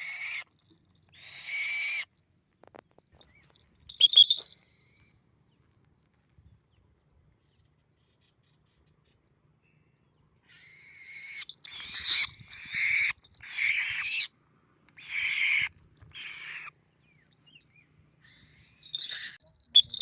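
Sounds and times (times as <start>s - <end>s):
bird screeching calls: 0.0s - 0.4s, 1.2s - 2.1s, 10.5s - 14.3s, 15.0s - 16.7s, 18.3s - 20.0s.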